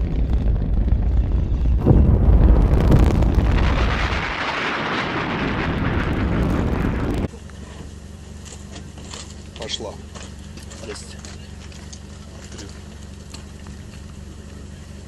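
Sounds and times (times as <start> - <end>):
rocket explosion roar: 0.0 - 7.3.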